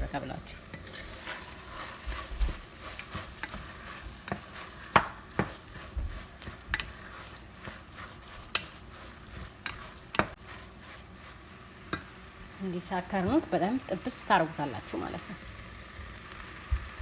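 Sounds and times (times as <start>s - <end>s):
meat sizzling in a pan: 0.0s - 17.0s
utensil scraping a pan: 0.8s - 12.0s.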